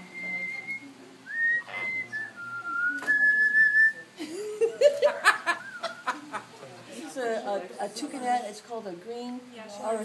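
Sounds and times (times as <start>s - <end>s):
parrot whistling a tune: 0.1s - 4.0s.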